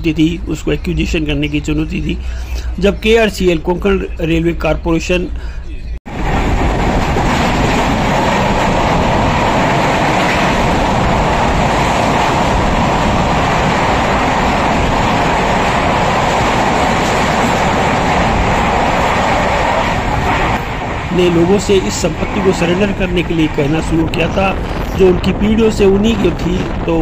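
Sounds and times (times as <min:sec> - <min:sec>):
train wheel and track noise: 0:05.5 - 0:27.0.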